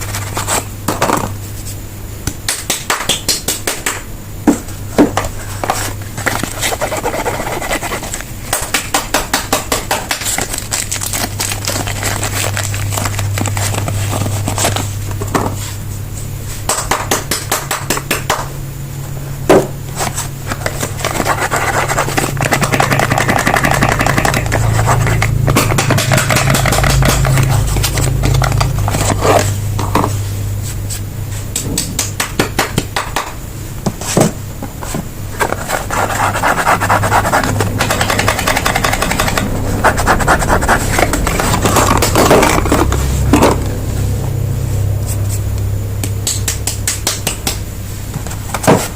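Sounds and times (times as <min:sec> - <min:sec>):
steady low hum: 0:00.0 - 0:48.9
wrappers crinkling: 0:10.2 - 0:15.0.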